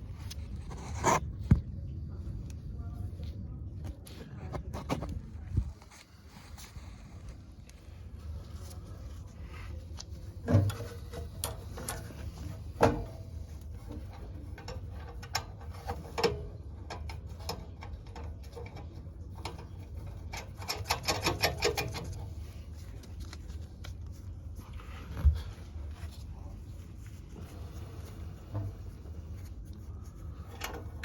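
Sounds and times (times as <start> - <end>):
sharp knocks and clicks of tools: 20.3 - 22.2.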